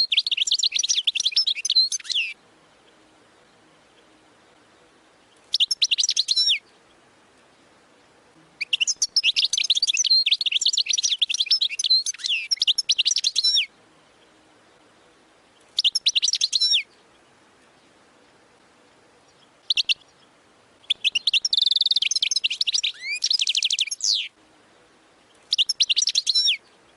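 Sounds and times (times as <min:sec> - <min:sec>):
goldfinch twittering song: 0:00.0 - 0:18.3, 0:18.9 - 0:24.4, 0:25.2 - 0:26.9.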